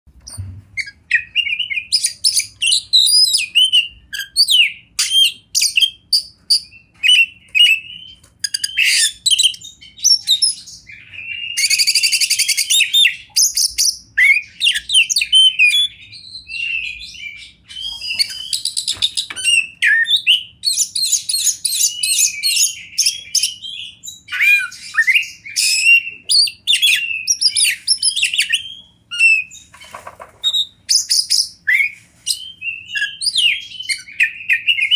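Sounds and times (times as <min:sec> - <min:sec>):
bird song whistles and chirps: 0:00.2 - 0:34.9
harsh buzzy bird rattles: 0:29.7 - 0:30.6.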